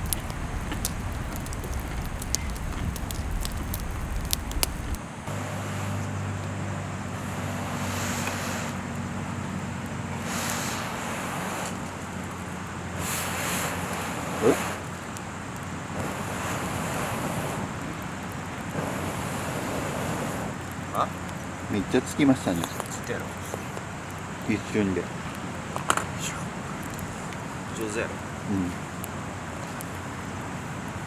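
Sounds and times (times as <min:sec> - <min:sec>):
surf washing in: 0:00.0 - 0:05.0
wind rumbling on microphone: 0:00.0 - 0:05.2
steady low hum: 0:00.0 - 0:06.4
wood fire crackling: 0:00.0 - 0:31.0.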